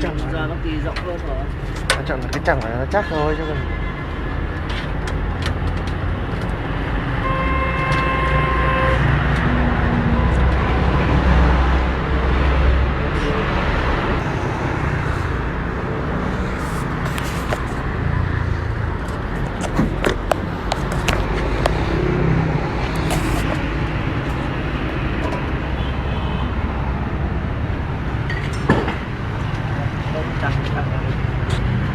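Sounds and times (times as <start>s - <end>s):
short horn-like tone: 7.2s - 9.1s.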